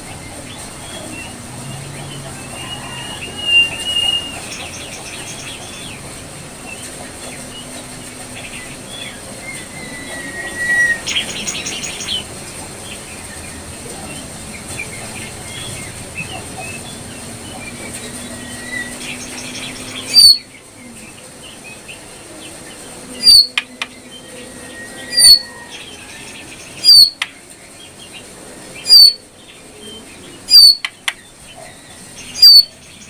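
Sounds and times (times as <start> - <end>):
bird chirps: 2.0 - 6.0, 15.5 - 20.5, 23.1 - 28.2, 28.8 - 33.0
bird whistling and chattering: 2.4 - 5.0, 9.5 - 12.2, 19.8 - 20.5, 23.2 - 23.8, 24.6 - 25.8, 26.8 - 27.3, 28.8 - 29.2, 30.5 - 31.1, 32.3 - 32.8.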